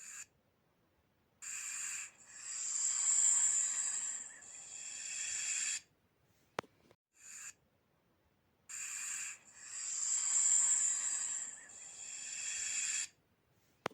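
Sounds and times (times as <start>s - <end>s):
snake hissing: 1.4s - 5.9s, 8.7s - 13.1s.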